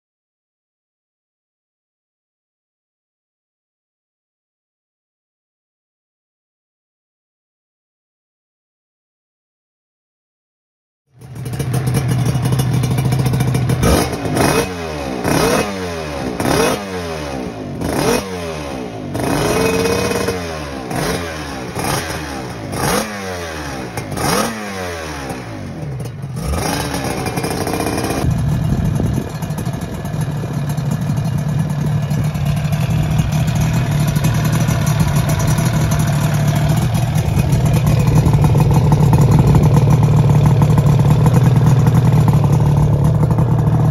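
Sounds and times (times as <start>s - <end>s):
two-stroke engine revving: 11.2s - 43.9s.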